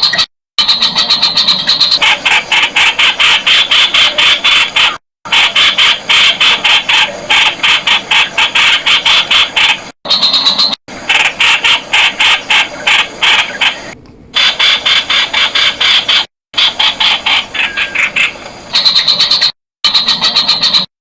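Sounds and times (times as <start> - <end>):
bulbul calling in sharp notes: 11.6 - 20.9.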